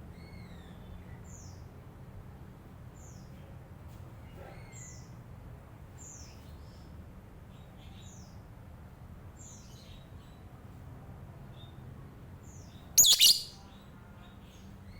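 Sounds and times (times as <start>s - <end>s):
lovebird chirping: 13.0s - 13.6s.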